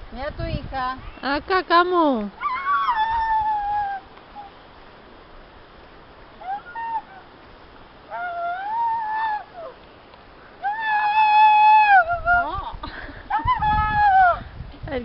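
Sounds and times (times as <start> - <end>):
dog howling: 2.4 - 4.5, 6.4 - 7.3, 8.1 - 9.8, 10.6 - 12.2.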